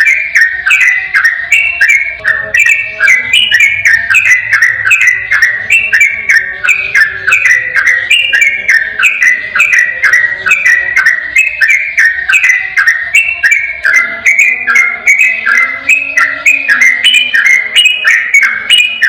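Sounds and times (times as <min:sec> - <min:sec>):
bird singing whistled notes: 0:00.0 - 0:19.0.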